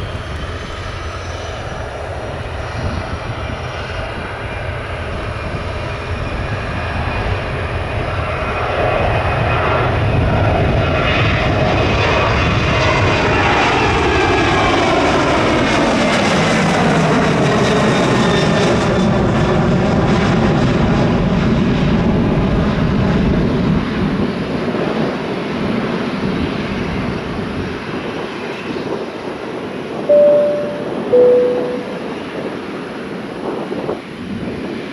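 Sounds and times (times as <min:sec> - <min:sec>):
short beep: 0:30.1 - 0:32.2.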